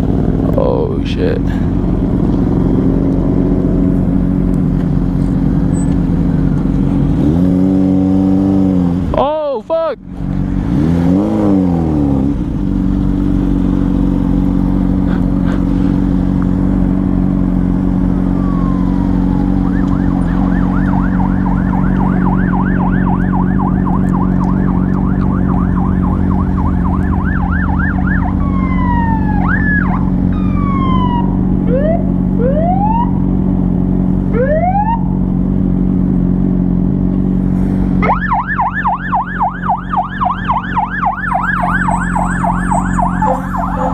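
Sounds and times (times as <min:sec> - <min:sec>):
emergency vehicle siren: 0:17.8 - 0:33.4, 0:34.3 - 0:35.2, 0:38.0 - 0:43.9.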